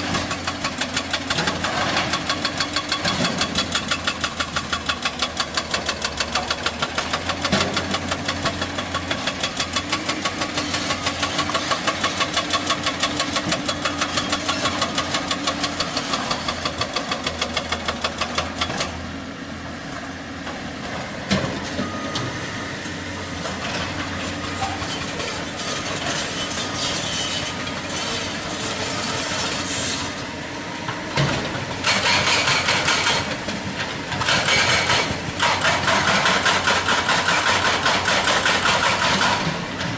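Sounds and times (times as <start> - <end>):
hydraulic breaker hammering rock: 0.0 - 19.0, 31.1 - 39.9.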